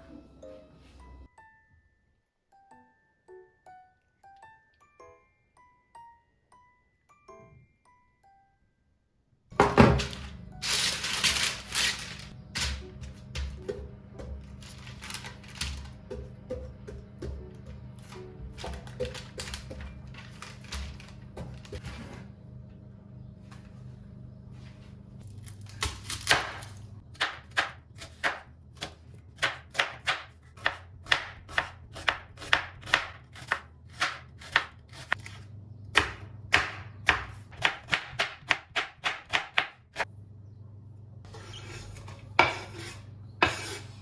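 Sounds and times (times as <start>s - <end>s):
knife chopping on cutting board: 15.5s - 19.9s, 25.8s - 35.4s, 36.0s - 39.8s, 42.4s - 43.9s.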